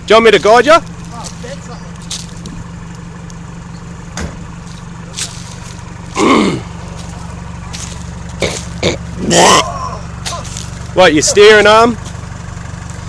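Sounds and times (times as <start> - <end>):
car engine at low revs: 0.0 - 13.0.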